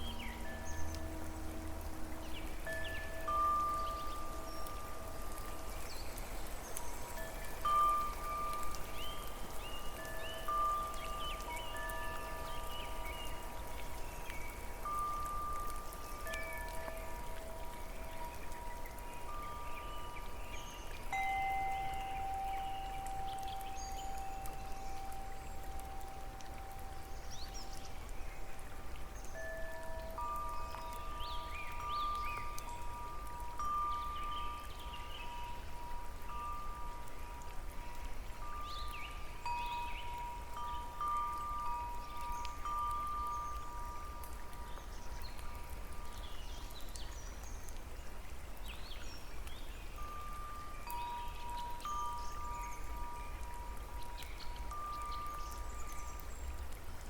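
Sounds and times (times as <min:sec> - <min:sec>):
wind chime tones: 0:00.0 - 0:46.2, 0:49.9 - 0:56.5
rain pattering: 0:00.0 - 0:57.0
water drips ticking: 0:00.0 - 0:57.0
chime ringing: 0:21.1 - 0:25.3.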